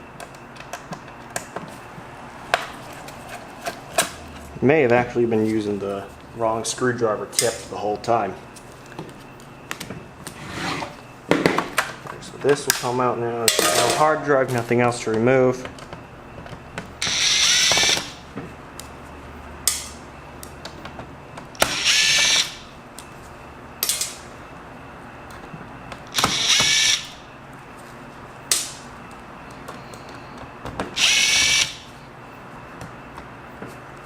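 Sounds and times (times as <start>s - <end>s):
power drill driving screws: 17.0s - 18.1s, 21.7s - 22.6s, 26.2s - 27.2s, 31.0s - 31.8s.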